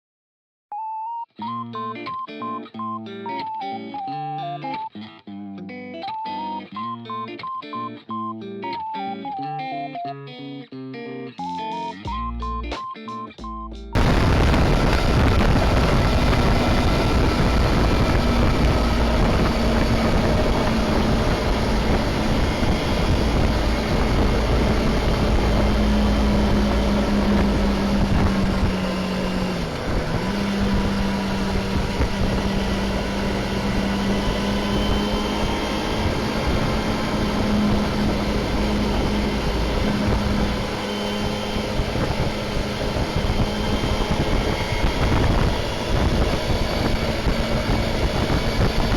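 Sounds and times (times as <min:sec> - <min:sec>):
motorcycle engine cruising: 0:14.0 - 0:48.9
wind and road noise: 0:14.0 - 0:48.9.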